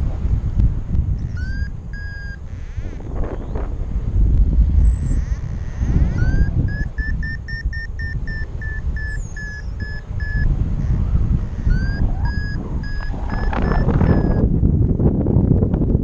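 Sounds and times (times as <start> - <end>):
wind noise on microphone: 0.0 - 16.0
variometer beeps: 0.9 - 3.0, 4.6 - 14.5.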